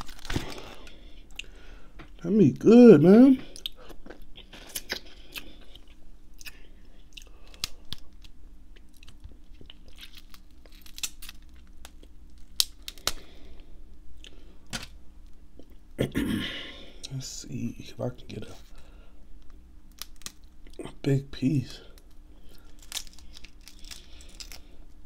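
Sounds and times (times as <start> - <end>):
crab shell cracking by hand: 7.2 - 13.4, 19.4 - 20.8, 21.9 - 24.7.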